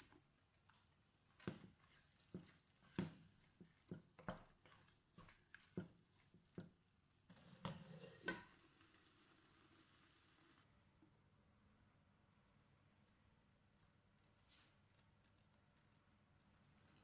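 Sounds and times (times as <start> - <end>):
utensil stirring food in pot: 0.0 - 9.8.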